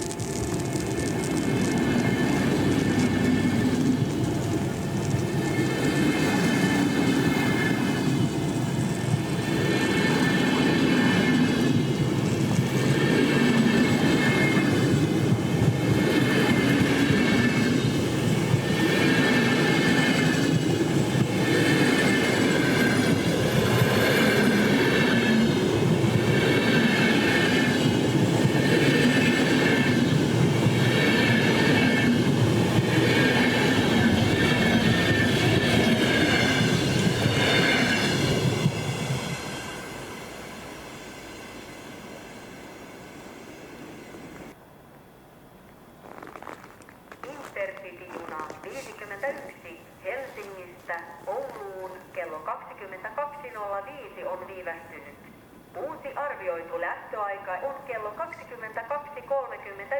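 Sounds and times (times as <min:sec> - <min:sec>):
train wheels rumbling on rails: 0:00.0 - 0:44.6
high train wheel squeal: 0:00.0 - 0:44.8.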